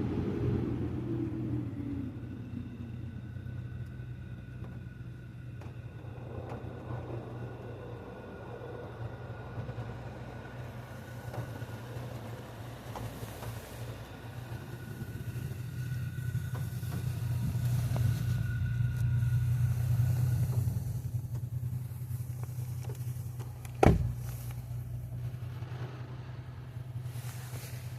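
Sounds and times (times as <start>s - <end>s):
car wash low hum: 0.0s - 27.9s
faint steady whine: 0.0s - 27.9s
hiss: 10.6s - 24.9s, 26.7s - 27.9s.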